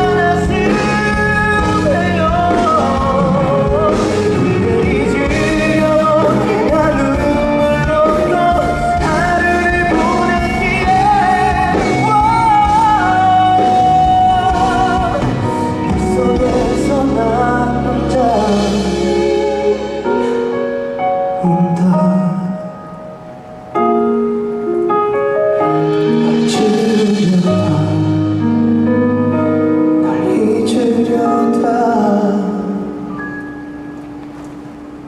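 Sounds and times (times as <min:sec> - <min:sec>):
man singing pop ballad: 0:00.0 - 0:20.5, 0:21.4 - 0:22.9, 0:26.0 - 0:29.0, 0:29.9 - 0:33.1
band accompaniment: 0:00.0 - 0:35.0.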